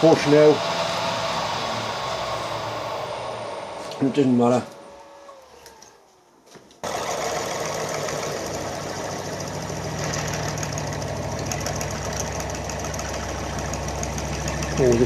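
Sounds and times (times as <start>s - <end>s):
machine tool drilling metal: 0.0s - 5.4s.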